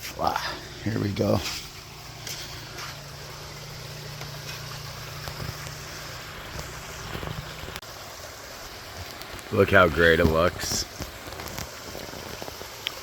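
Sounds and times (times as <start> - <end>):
pond waterfall splashing: 0.0 - 13.0
small ticks: 5.2 - 7.5.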